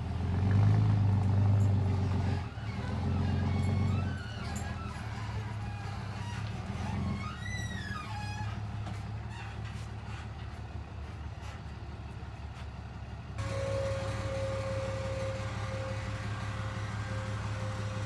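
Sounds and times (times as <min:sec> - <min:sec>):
truck engine humming: 0:00.0 - 0:18.0
steady whine: 0:13.0 - 0:18.0.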